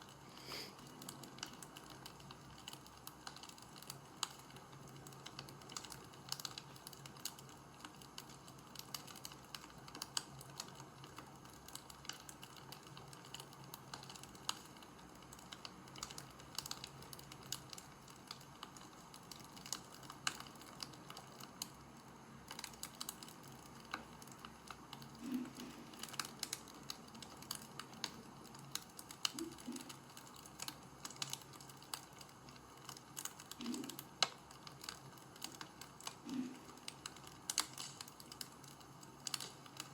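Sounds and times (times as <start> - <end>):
faint steady hum: 0.0 - 39.9
light clicking and crackling: 0.0 - 39.9.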